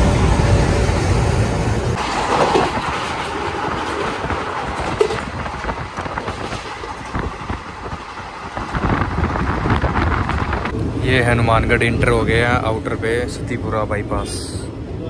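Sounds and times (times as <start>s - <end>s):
train rumble: 0.0s - 15.0s
train wheels clicking on rail joints: 2.0s - 10.7s.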